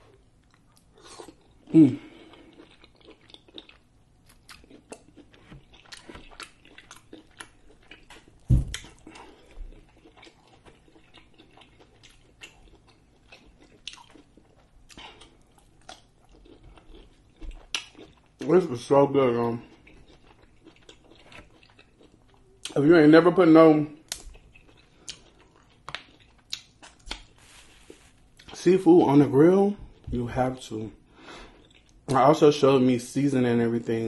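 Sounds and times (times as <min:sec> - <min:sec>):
chewing with lip smacks: 0:00.0 - 0:18.6, 0:19.6 - 0:22.8, 0:24.0 - 0:28.6
louder thump: 0:08.5 - 0:08.8.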